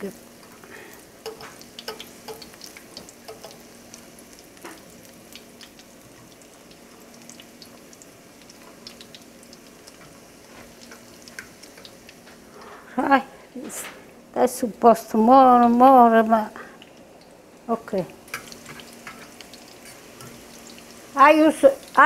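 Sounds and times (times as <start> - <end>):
food frying in oil: 0.0 - 22.0
fork clicking against pan: 1.2 - 3.6.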